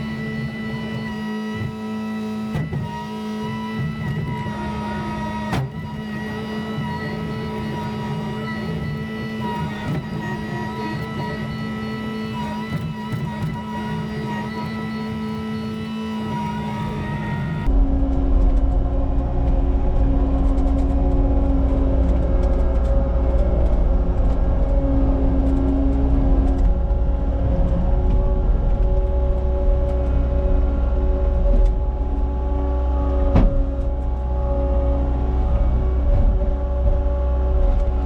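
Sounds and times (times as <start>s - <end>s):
diesel engine rumbling: 11.3s - 38.0s.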